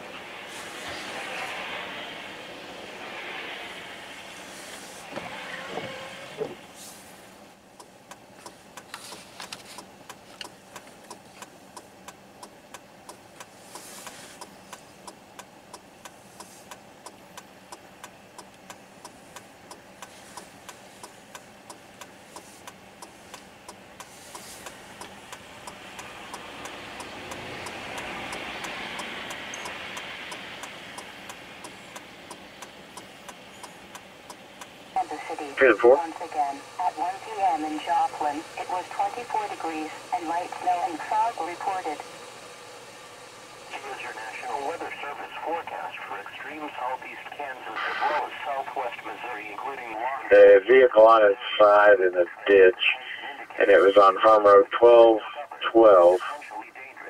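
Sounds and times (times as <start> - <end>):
rushing sound: 0.0 - 7.1
engine idling: 4.2 - 57.0.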